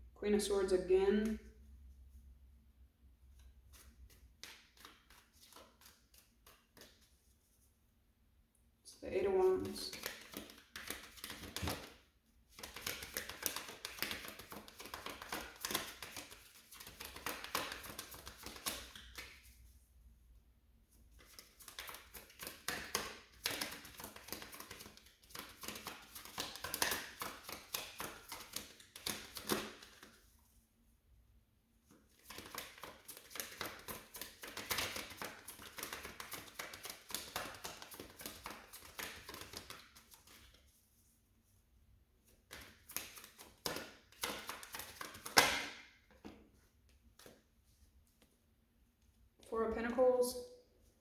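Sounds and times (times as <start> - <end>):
cards being shuffled: 3.7 - 7.3, 9.6 - 19.8, 21.1 - 30.3, 31.9 - 40.7, 42.2 - 48.4
cards snapping: 4.4 - 7.0, 9.9 - 19.4, 21.2 - 30.1, 32.1 - 40.4, 42.4 - 45.8.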